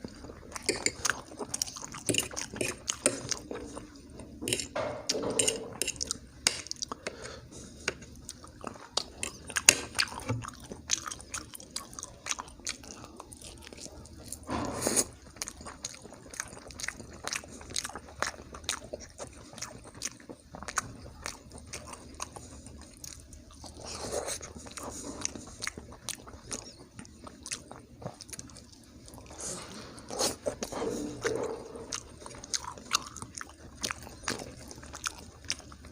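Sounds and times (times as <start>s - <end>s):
person chewing and biting: 30.1s - 35.9s.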